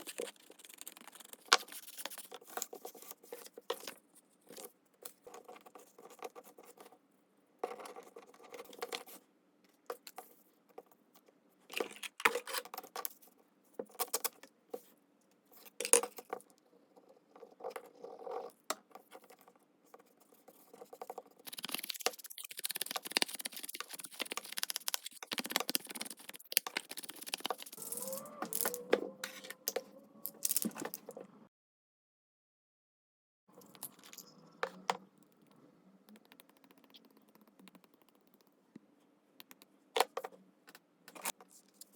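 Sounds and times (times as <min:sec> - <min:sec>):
continuous paper rubbing: 0:21.4 - 0:27.8.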